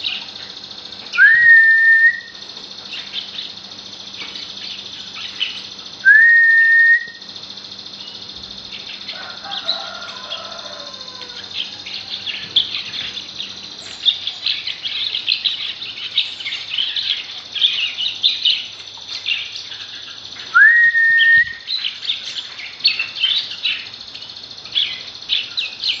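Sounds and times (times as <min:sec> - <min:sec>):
small birds chirping: 0:00.0 - 0:26.0
loud rising whistle: 0:01.2 - 0:02.3, 0:06.0 - 0:07.2, 0:20.5 - 0:21.7.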